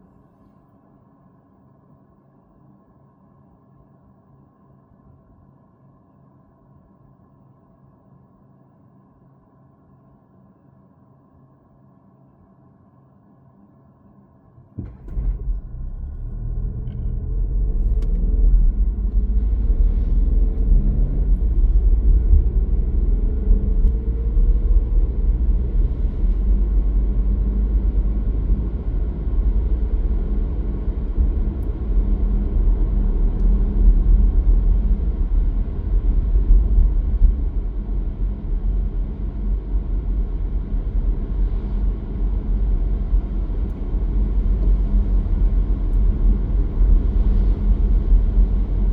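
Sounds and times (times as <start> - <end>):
car engine and tyres rumbling: 14.8 - 48.9.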